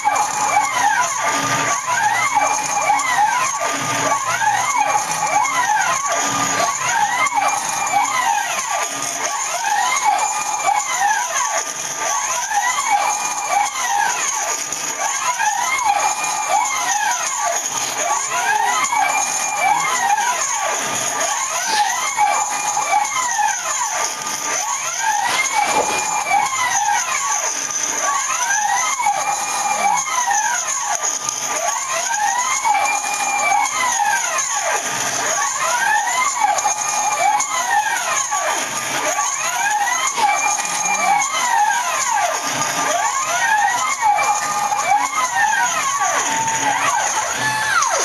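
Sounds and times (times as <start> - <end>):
stepper motors whining: 0.0 - 48.0
steady whine: 15.8 - 28.2.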